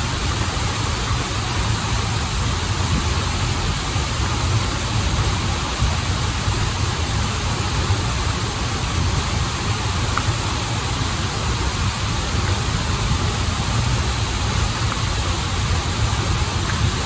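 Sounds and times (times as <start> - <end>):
stream and waterfall rushing: 0.0 - 17.0.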